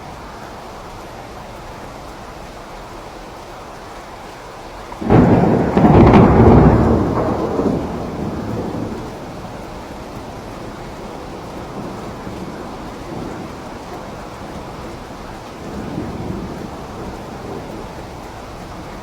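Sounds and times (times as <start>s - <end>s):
steady rain: 0.0s - 19.0s
thunderclap: 5.0s - 19.0s.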